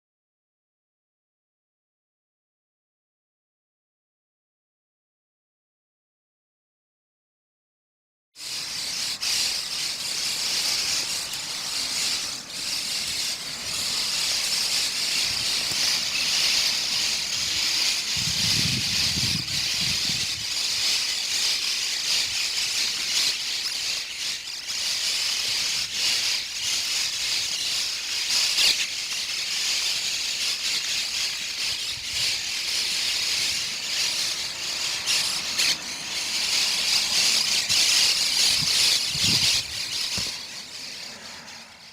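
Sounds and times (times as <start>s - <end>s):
flock of birds chattering: 8.4s - 41.9s.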